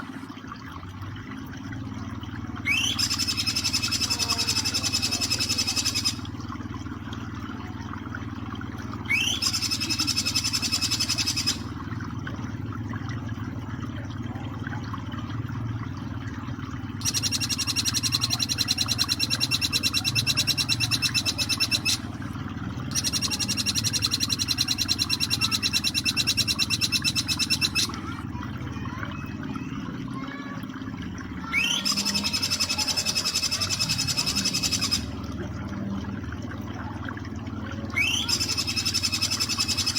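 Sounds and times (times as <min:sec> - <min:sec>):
flowing water: 0:00.0 - 0:39.9
bird rapid high repeated notes: 0:02.7 - 0:06.2, 0:09.1 - 0:11.7, 0:17.0 - 0:22.1, 0:22.9 - 0:27.9, 0:31.6 - 0:35.1, 0:38.0 - 0:39.9.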